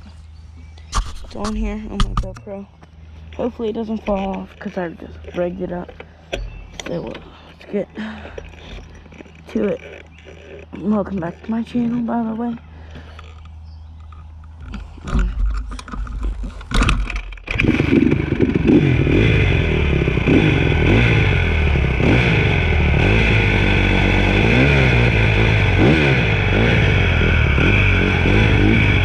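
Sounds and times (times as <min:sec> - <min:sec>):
engine knocks and clatters: 0:00.0 - 0:29.0
dirt bike engine revving: 0:03.2 - 0:13.0, 0:16.3 - 0:29.0.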